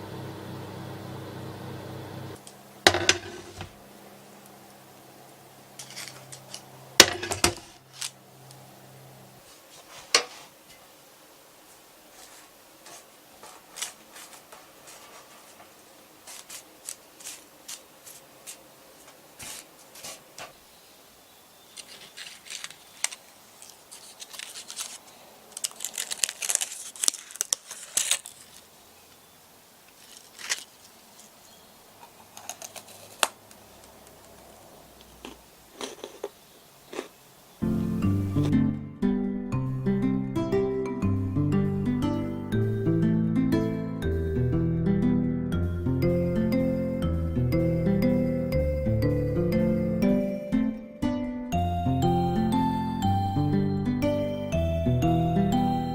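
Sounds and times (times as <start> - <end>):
crisp rustling and crinkling: 5.7 - 8.6, 9.4 - 10.9, 11.6 - 20.7, 21.6 - 37.2.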